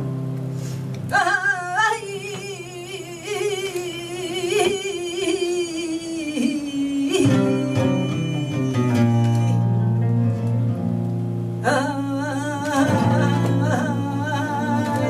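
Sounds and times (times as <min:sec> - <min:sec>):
flamenco guitar: 0:00.0 - 0:15.0
woman singing with vibrato: 0:01.0 - 0:10.0, 0:11.6 - 0:15.0.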